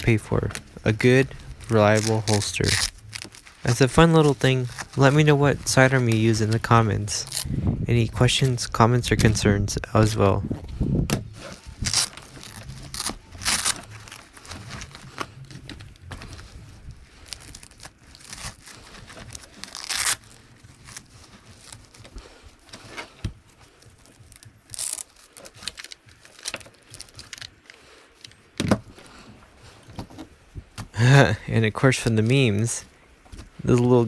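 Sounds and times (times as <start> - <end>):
handling noise: 0.0 - 31.0
hook-and-loop straps ripping: 0.1 - 7.6, 11.0 - 28.9.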